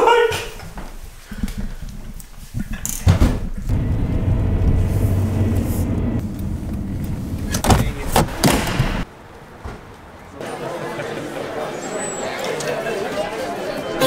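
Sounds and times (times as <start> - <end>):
sharp thuds: 3.0 - 9.0
car engine rumbling: 3.5 - 9.1.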